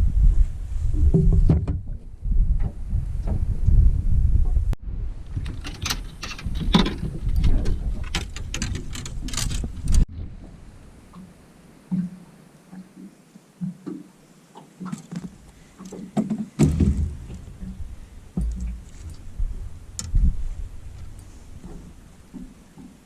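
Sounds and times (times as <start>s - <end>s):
knocks and thumps on boat: 1.0s - 3.6s, 5.3s - 10.5s, 14.8s - 23.0s.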